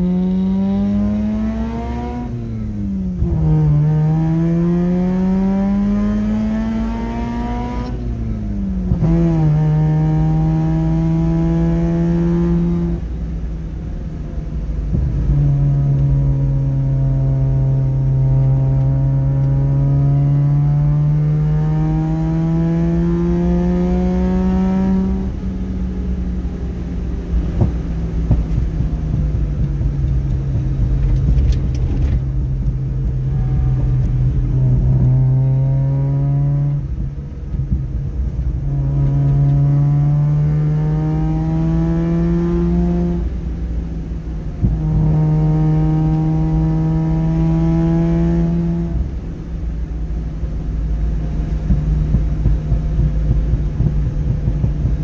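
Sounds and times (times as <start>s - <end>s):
rotary engine revving in car cabin: 0.0s - 55.0s.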